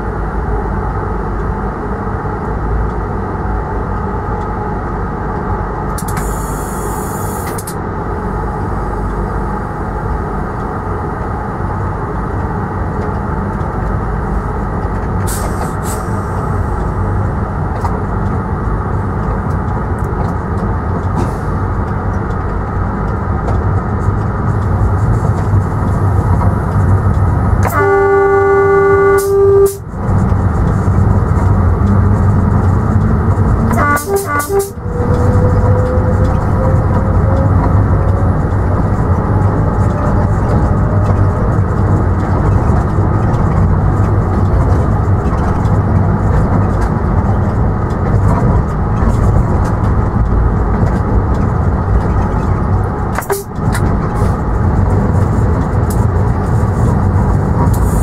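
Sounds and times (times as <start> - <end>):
train rumble: 0.0 - 58.0
train horn blast: 27.6 - 29.9, 33.7 - 35.1.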